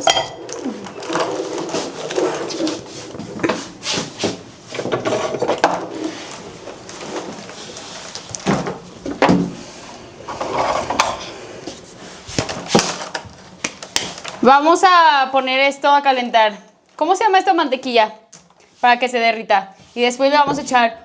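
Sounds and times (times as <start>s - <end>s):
kitchen items clattering: 0.0s - 14.5s.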